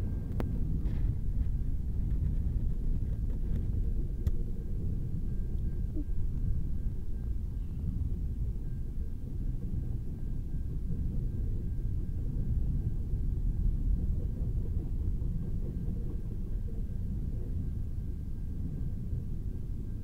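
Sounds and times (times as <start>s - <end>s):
freight train wheels rumbling: 0.0s - 20.0s
faint high steady tone: 4.7s - 12.2s.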